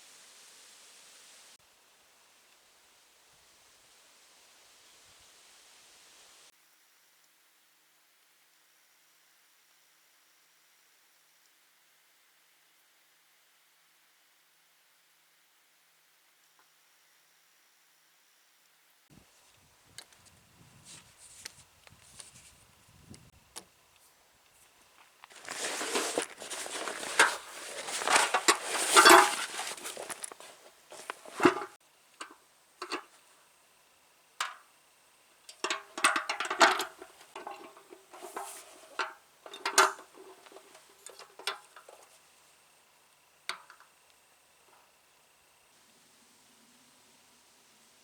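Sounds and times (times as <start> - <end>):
gear rustling: 25.0 - 33.1, 35.6 - 42.1.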